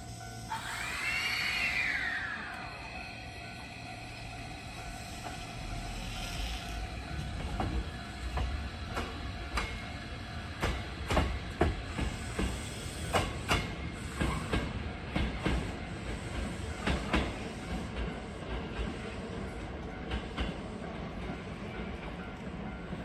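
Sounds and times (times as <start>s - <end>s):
train low rumble: 0.0s - 23.0s
train wheels clacking over rail joints: 5.2s - 20.7s.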